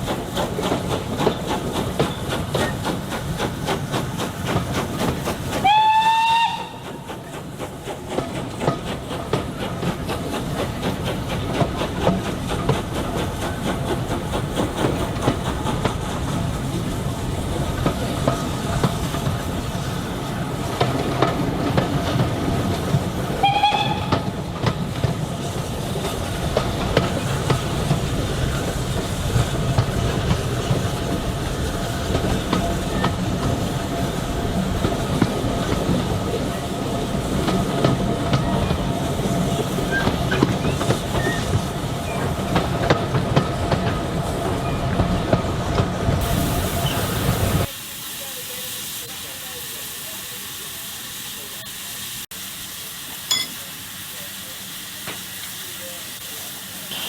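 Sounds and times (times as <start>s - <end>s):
train rumbling on rails: 0.0s - 52.8s
train whistle blowing: 5.6s - 7.0s, 23.4s - 24.3s.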